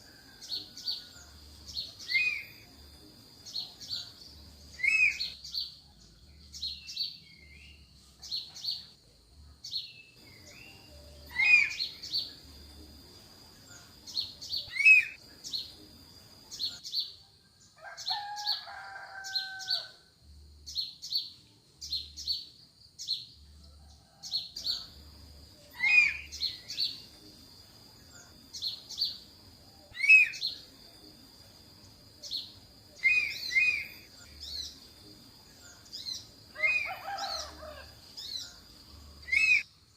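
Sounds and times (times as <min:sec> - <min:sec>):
high bird chirps: 0:01.8 - 0:02.7, 0:04.7 - 0:05.7, 0:09.9 - 0:12.4, 0:14.1 - 0:15.6, 0:32.4 - 0:34.8, 0:39.2 - 0:39.6
lower two-toned bird call: 0:10.3 - 0:12.0, 0:29.9 - 0:30.5, 0:39.2 - 0:39.7.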